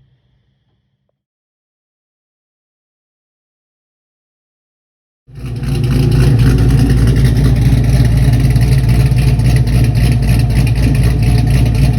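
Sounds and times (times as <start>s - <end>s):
engine idling loudly: 5.3s - 11.9s.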